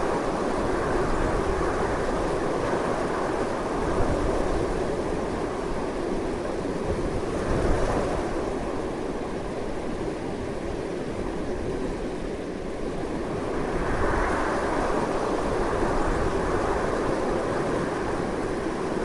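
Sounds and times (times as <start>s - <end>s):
strong wind blowing: 0.0s - 19.0s.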